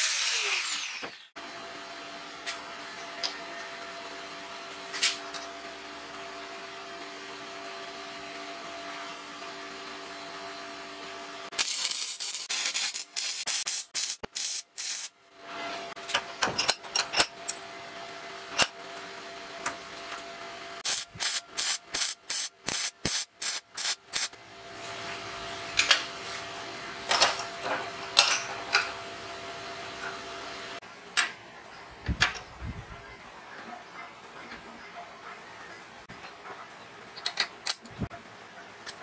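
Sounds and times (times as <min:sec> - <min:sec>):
welding machine hum: 0:11.4 - 0:15.2, 0:19.6 - 0:27.2
welding arc crackling: 0:11.5 - 0:15.2, 0:20.8 - 0:24.4.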